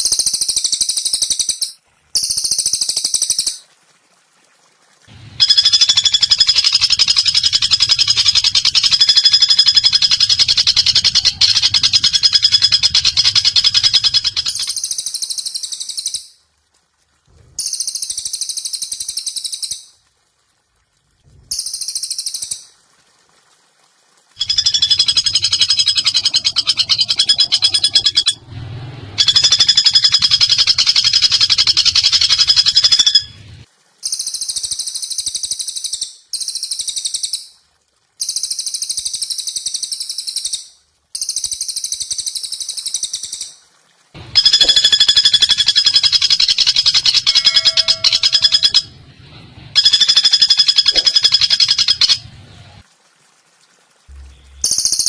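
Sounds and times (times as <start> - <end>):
bird rattling trills: 5.4 - 16.2, 24.4 - 28.5, 29.2 - 33.4, 44.3 - 49.0, 49.8 - 52.3.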